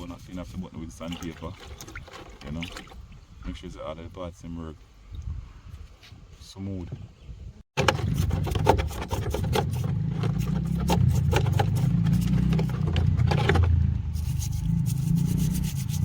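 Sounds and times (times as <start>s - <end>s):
metal parts scraped and sanded: 7.8s - 16.0s.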